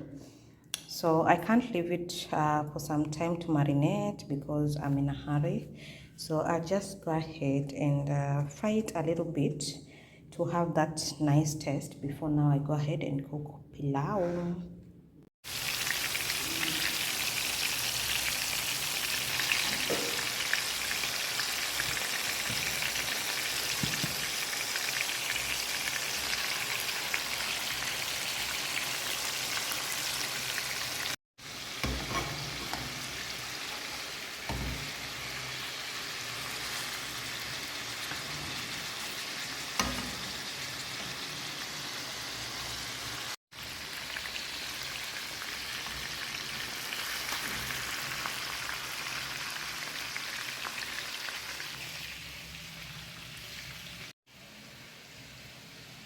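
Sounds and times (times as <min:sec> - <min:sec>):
chicken sizzling in hot oil: 0:15.4 - 0:56.0
utensil knocking on pan: 0:19.7 - 0:20.3.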